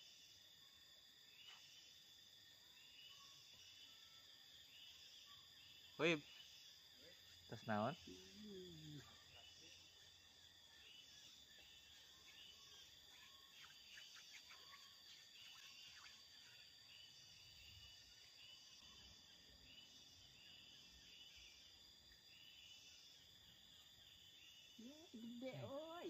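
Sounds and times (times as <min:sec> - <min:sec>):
high insect drone: 0:00.0 - 0:26.0.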